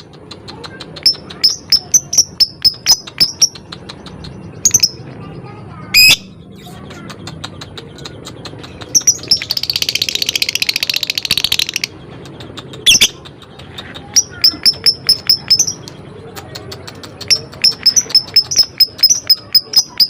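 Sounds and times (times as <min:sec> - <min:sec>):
bird rattling chatter: 0:16.4 - 0:20.0.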